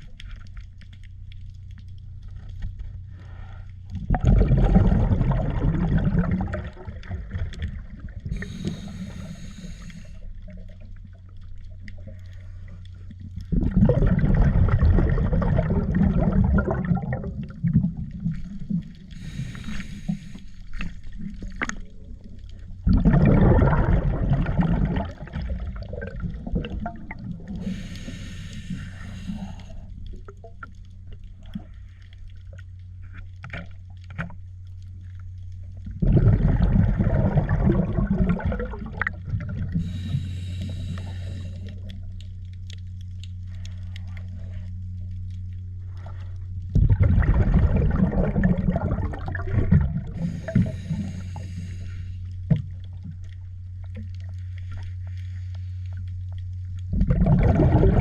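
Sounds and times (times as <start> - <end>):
rushing gurgling water: 4.1 - 8.8, 22.9 - 27.8, 36.0 - 39.8, 46.8 - 51.2, 57.0 - 58.0.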